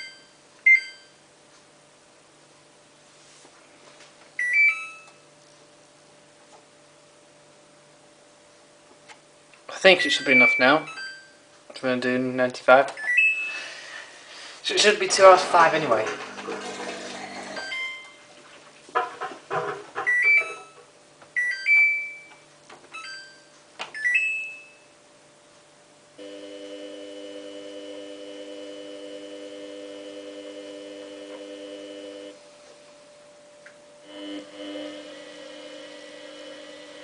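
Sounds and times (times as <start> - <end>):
washing machine humming: 13.0 - 21.8, 25.7 - 37.0
washing machine panel beeping: 20.0 - 20.8.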